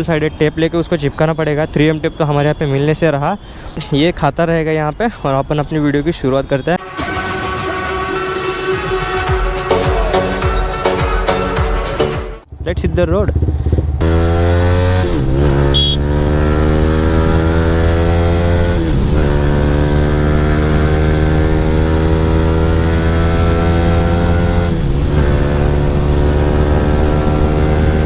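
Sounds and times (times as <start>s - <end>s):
motorcycle engine accelerating: 12.4s - 28.0s.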